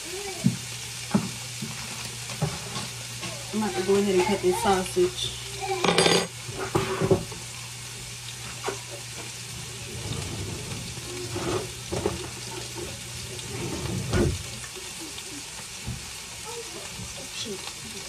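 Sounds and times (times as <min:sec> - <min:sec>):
chicken sizzling in a pan: 0:00.0 - 0:18.0.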